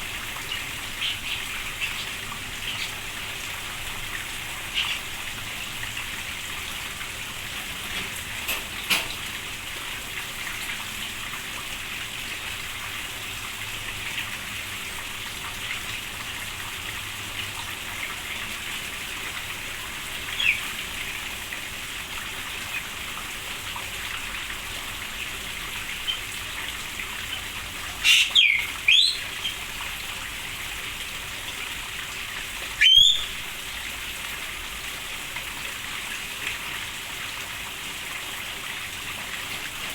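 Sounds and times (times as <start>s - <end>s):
rain hissing on aviary: 0.0s - 39.9s
cage birds calling: 0.2s - 3.4s, 4.2s - 5.9s, 7.4s - 9.3s, 20.2s - 21.1s, 25.8s - 26.4s, 27.2s - 29.7s, 32.8s - 33.8s.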